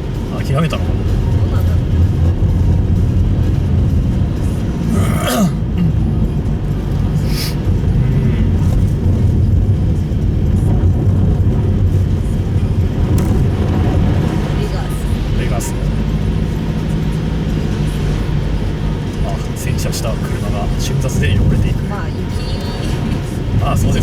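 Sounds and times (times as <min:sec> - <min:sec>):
car engine and tyre drone: 0:00.0 - 0:24.0
throat-clearing-like sound: 0:04.9 - 0:06.0.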